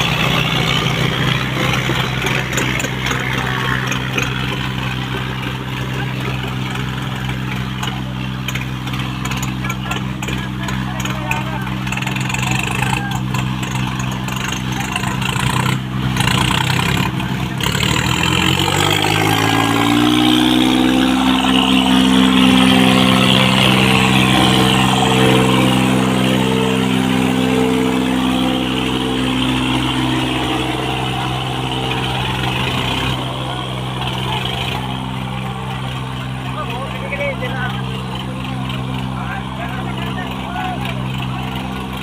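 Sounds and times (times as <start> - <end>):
tractor diesel engine revving: 0.0 - 42.0.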